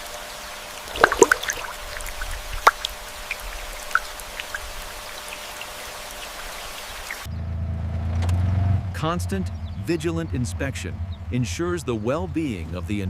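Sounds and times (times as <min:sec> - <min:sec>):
water drops pattering: 0:00.9 - 0:07.3.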